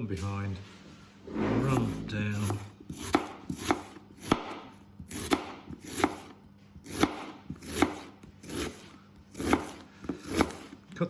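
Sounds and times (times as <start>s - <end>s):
knife slicing onion: 1.8s - 10.8s.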